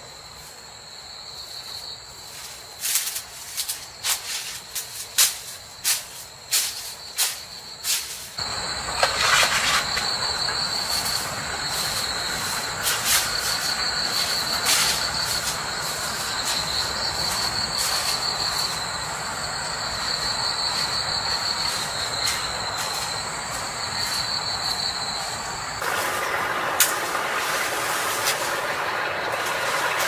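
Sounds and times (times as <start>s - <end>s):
pulsing insect trill: 6.4s - 30.0s
steady rushing noise: 10.1s - 30.0s.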